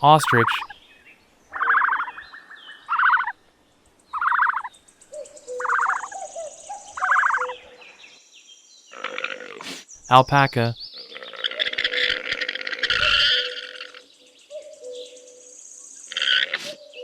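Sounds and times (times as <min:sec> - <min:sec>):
bird rattling calls: 0:04.2 - 0:04.7, 0:05.5 - 0:06.3.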